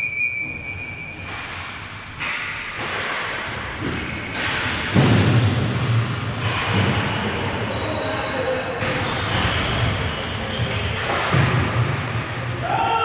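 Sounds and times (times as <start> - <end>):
thuds: 1.1 - 7.8
echoing din of play: 2.8 - 13.0.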